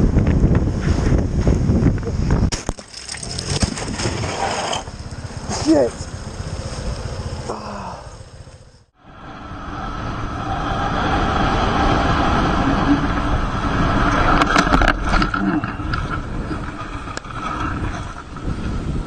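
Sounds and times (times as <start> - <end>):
vehicle noise: 0.0 - 19.0
wind: 0.0 - 19.0.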